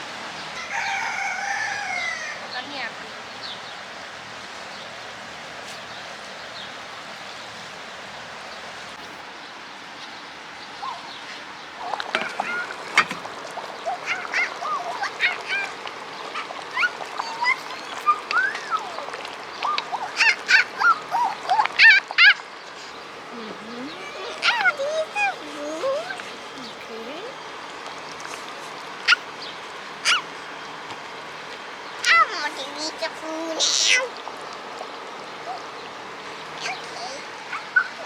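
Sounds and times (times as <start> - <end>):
steady background hiss: 0.0 - 38.0
poultry calling: 0.4 - 3.2, 11.8 - 31.2.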